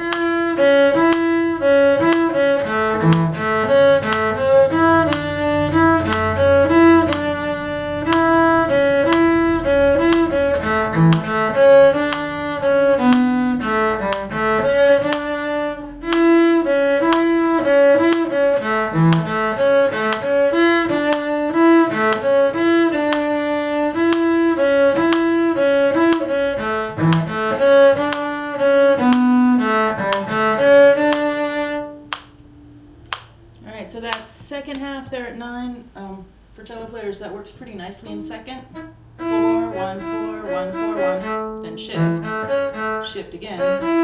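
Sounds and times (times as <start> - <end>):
violin and cello tune: 0.0 - 34.2, 37.7 - 44.0.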